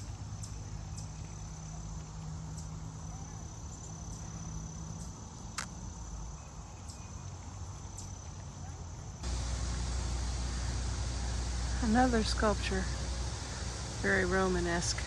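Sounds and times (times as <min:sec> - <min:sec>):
faint ticks and clicks: 0:09.2 - 0:15.0
insects trilling: 0:09.2 - 0:15.0
low outdoor rumble: 0:09.2 - 0:15.0.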